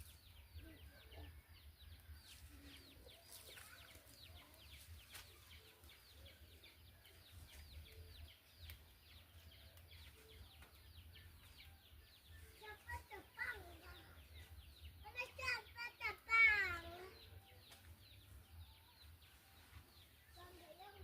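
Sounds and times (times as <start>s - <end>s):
bird chirping: 0.0s - 21.0s.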